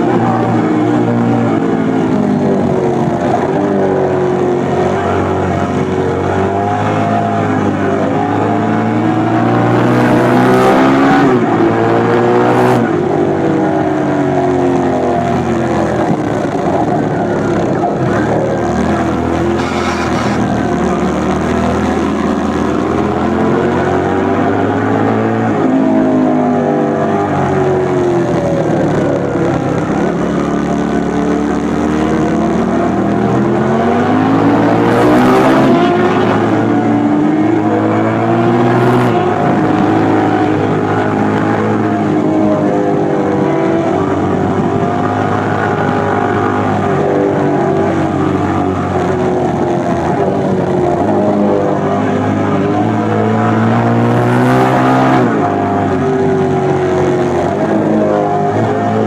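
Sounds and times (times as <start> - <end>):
motorcycle engine revving: 18.8 - 21.8.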